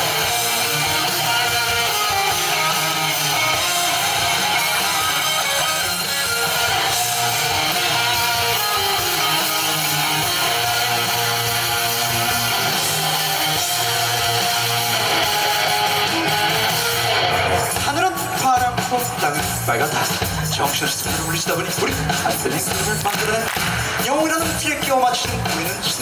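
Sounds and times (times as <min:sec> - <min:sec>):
live band playing: 0:00.0 - 0:26.0
strummed electric guitar: 0:00.0 - 0:26.0.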